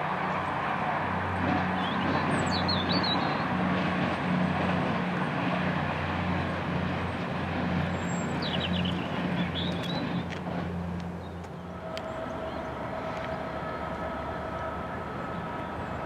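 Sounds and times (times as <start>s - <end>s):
diesel train engine humming: 0.0s - 16.0s
birds chirping: 7.8s - 10.4s.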